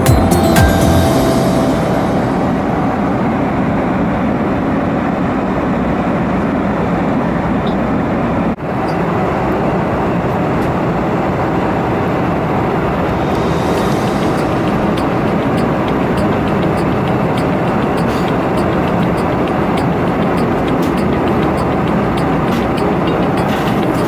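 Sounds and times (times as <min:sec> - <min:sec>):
airliner cabin noise: 0:00.0 - 0:24.0.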